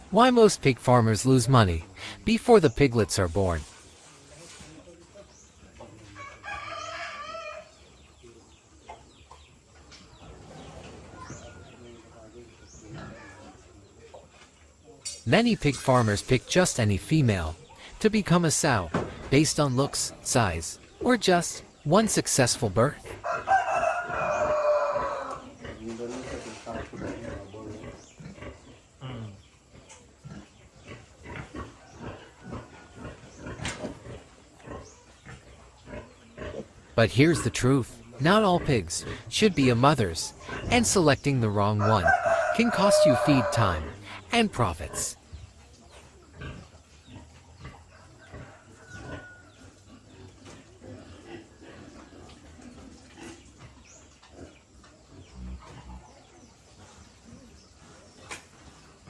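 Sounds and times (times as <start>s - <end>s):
birds chirping: 0.0s - 59.0s
pigs grunting: 10.2s - 13.8s, 15.7s - 59.0s.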